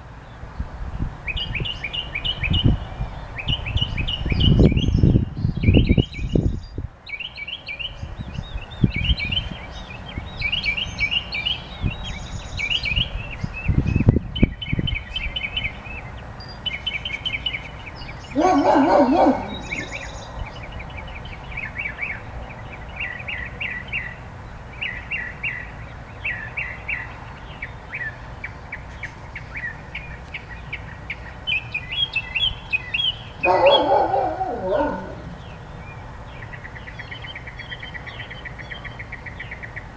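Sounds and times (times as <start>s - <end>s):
songbird chirping: 1.3s - 39.9s
low bird calls: 16.6s - 20.4s, 31.9s - 35.6s.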